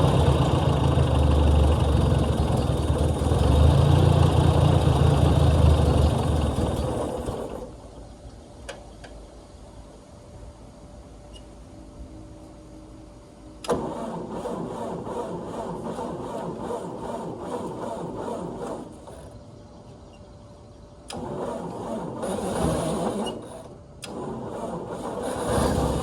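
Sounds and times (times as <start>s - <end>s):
tractor engine cranking: 0.0s - 7.7s, 13.6s - 19.4s, 21.1s - 26.0s.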